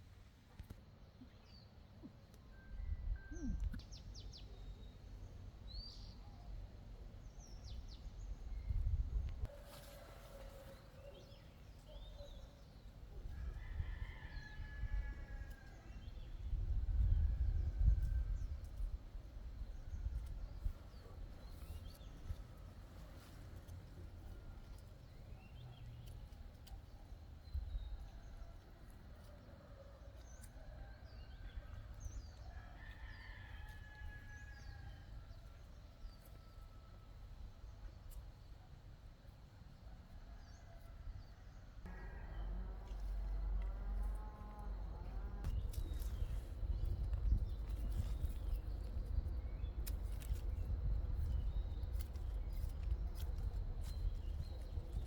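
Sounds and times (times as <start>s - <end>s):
distant rooster crowing: 9.5s - 11.4s, 13.3s - 16.2s, 29.2s - 37.1s, 40.1s - 45.4s
small birds chirping: 41.9s - 55.0s.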